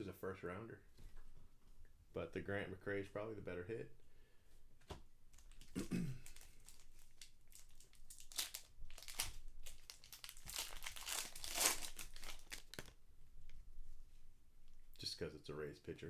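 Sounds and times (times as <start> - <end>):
foil wrapper crinkling: 5.3 - 13.0.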